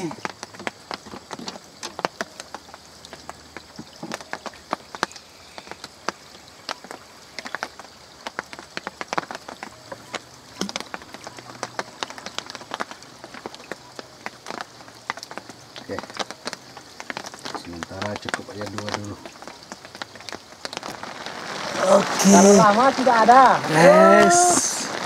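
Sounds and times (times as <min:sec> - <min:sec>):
raindrops tapping on a surface: 0:00.0 - 0:25.0
steady rain hiss: 0:00.0 - 0:25.0.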